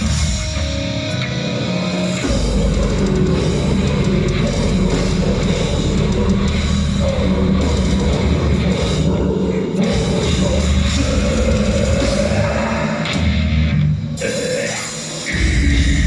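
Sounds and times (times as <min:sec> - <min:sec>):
live heavy metal band: 0:00.0 - 0:16.0.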